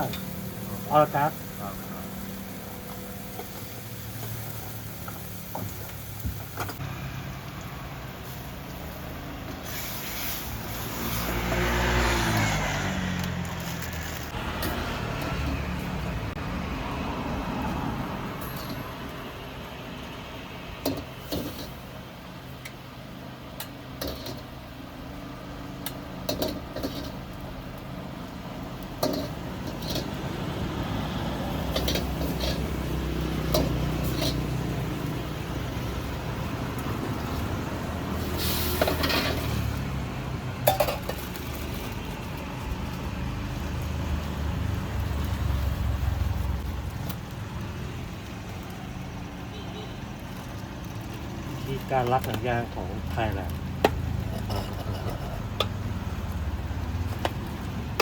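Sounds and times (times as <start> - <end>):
metal utensils clinking on dishes: 29.0 - 30.2, 54.2 - 55.6.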